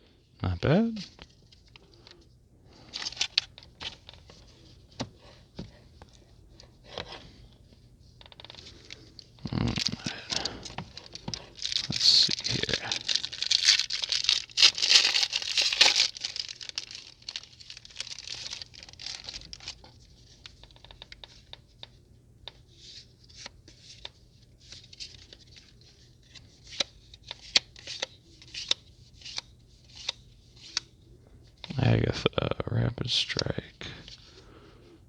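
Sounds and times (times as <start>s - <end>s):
foil pack crinkling and tearing: 8.3s - 21.2s.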